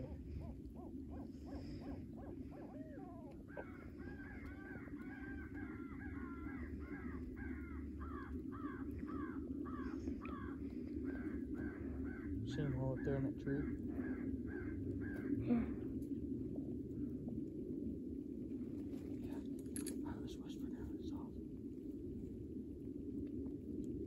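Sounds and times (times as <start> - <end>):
crows cawing: 0.0 - 15.6.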